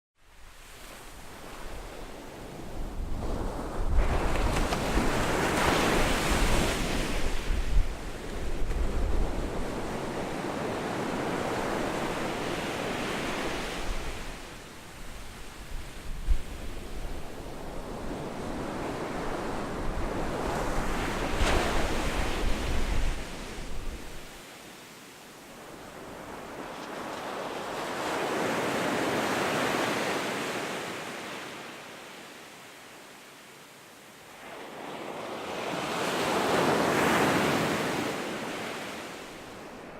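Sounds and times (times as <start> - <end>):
ocean waves breaking on beach: 0.3 - 39.9
wave breaking on beach: 0.7 - 16.2
wind buffeting microphone: 2.6 - 10.4, 15.0 - 24.3.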